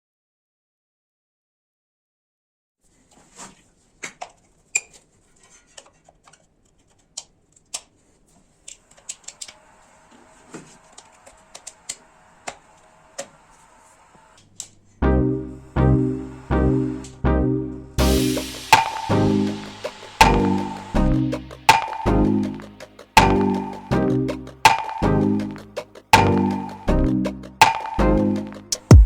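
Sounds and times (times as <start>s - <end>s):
background music with strong beat: 18.0s - 29.0s.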